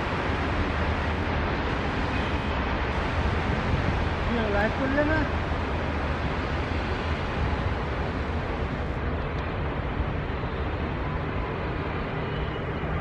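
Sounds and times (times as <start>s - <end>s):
wind noise on microphone: 0.0s - 11.3s
passenger train running: 0.0s - 13.0s.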